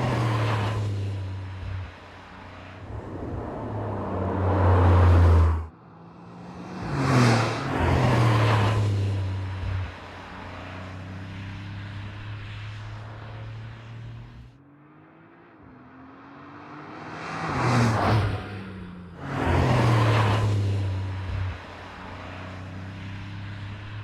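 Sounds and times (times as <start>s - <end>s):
car engine accelerating: 2.3s - 14.4s.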